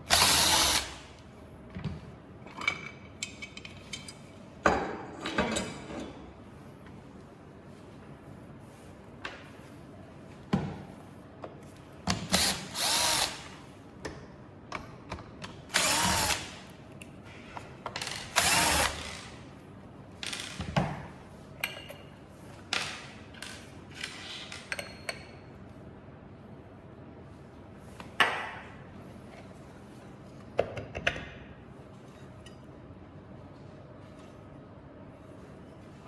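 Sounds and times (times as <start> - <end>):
power screwdriver running: 0.1 - 1.0, 12.4 - 13.4, 15.7 - 16.6, 18.3 - 19.3.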